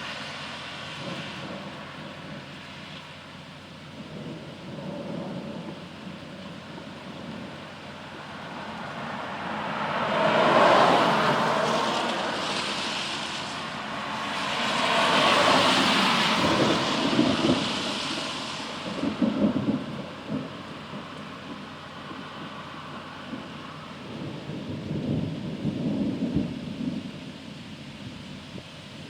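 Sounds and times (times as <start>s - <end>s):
thunder rumbling: 0.0s - 29.0s
sharp thunder cracks: 16.2s - 21.6s.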